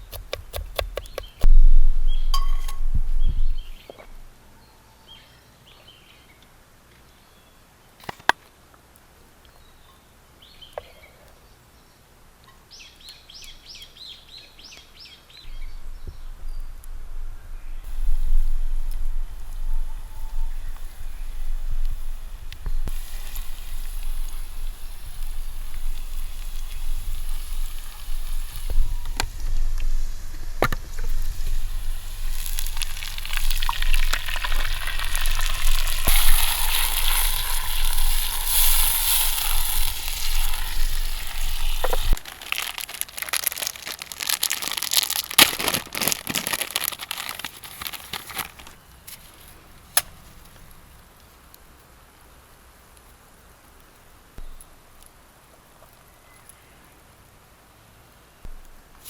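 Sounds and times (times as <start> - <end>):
food sizzling in a frying pan: 17.9 - 45.1.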